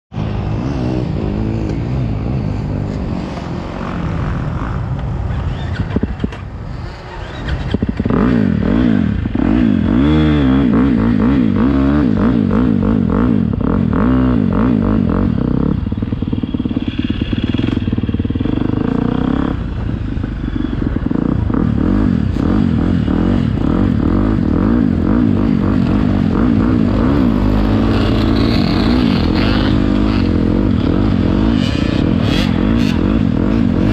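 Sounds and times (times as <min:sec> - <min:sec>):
motorbike engine revving: 0:00.3 - 0:19.8, 0:20.4 - 0:33.9.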